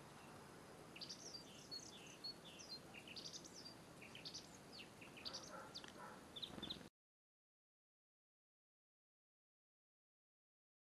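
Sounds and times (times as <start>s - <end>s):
small songbirds chirping: 0.0s - 6.9s.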